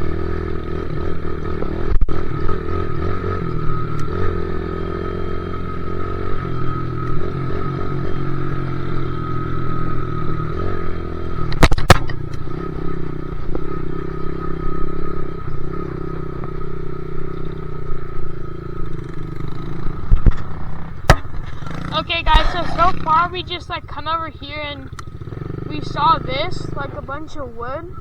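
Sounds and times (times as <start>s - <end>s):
dirt bike engine running: 0.0s - 28.0s
sharp knocks: 20.1s - 21.8s.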